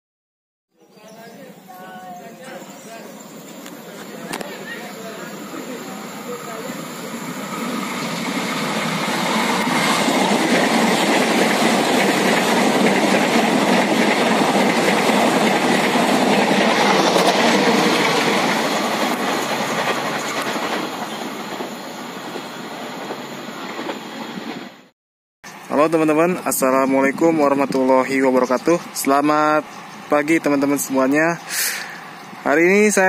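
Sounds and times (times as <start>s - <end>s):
train wheels rattling on rails: 2.5s - 24.9s.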